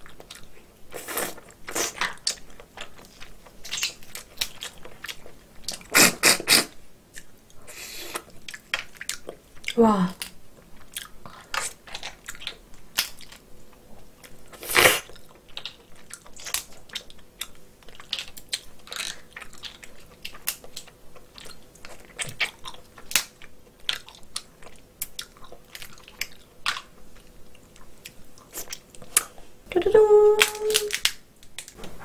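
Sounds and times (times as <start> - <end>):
chewing and wet mouth sounds: 0.0 - 29.6
crab shell crunch: 14.5 - 26.9, 30.4 - 31.8.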